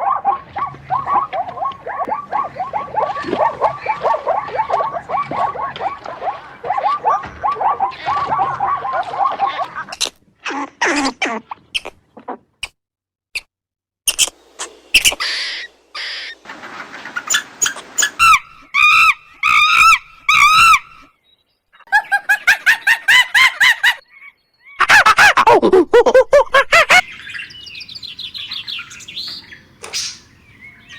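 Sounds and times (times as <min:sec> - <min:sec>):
bird chirps and calls: 0:00.0 - 0:09.7, 0:14.1 - 0:16.4, 0:26.9 - 0:30.9.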